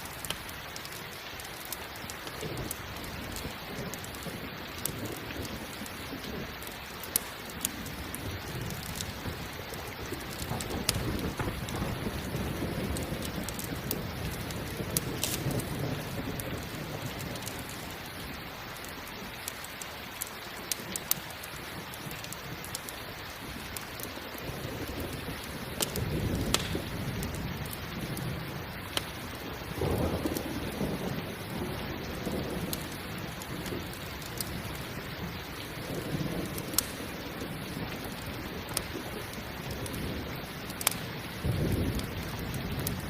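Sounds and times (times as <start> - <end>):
campfire crackling: 0.0 - 43.0
steady rain: 0.0 - 43.0
rolling thunder: 7.6 - 17.8, 24.4 - 43.0.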